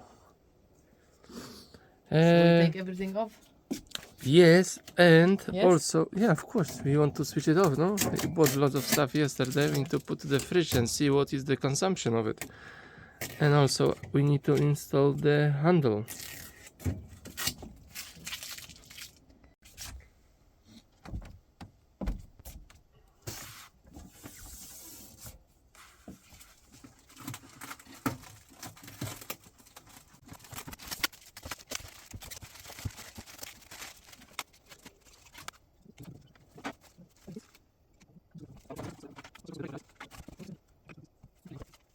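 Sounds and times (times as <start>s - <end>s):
rustling or tearing: 16.1s - 16.7s, 17.3s - 20.0s, 25.8s - 35.6s.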